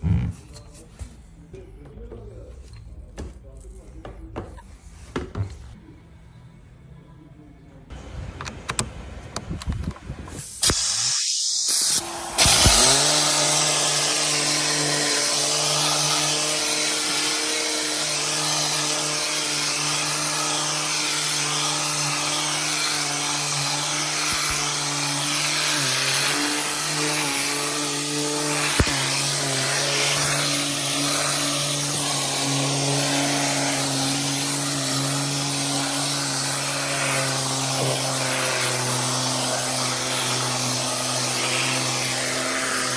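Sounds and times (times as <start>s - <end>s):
handling knocks and clicks: 8.3s - 10.1s
vacuum cleaner running: 10.6s - 42.9s.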